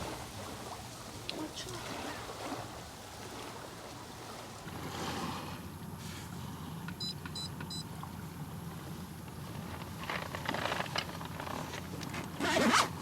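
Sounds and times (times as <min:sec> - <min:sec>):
low mechanical rumble with hiss: 0:04.6 - 0:12.4.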